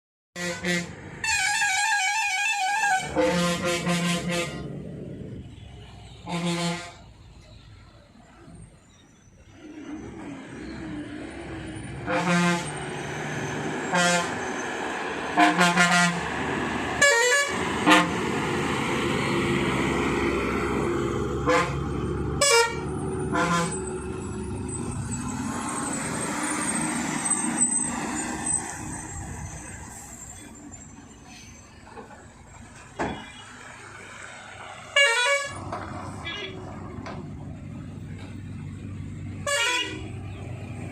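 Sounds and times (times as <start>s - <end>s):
truck horn blasts: 0.4s - 4.8s, 5.9s - 7.1s, 12.0s - 13.0s, 13.6s - 14.6s, 15.3s - 16.4s, 17.0s - 18.3s, 21.4s - 23.9s, 34.9s - 36.7s, 39.4s - 40.2s
heavy truck engines running: 0.4s - 40.9s.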